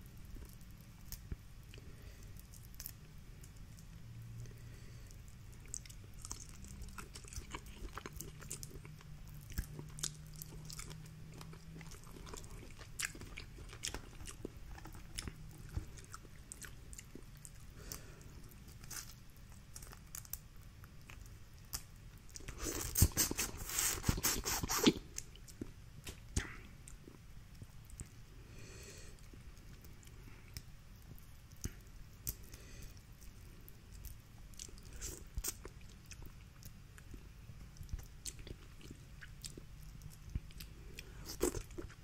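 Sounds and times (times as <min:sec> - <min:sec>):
crunching and cracking: 0:00.0 - 0:03.9, 0:05.0 - 0:28.1
wet chewing: 0:04.6 - 0:27.2, 0:29.2 - 0:42.0
mouth smacks and clicks: 0:21.1 - 0:27.1.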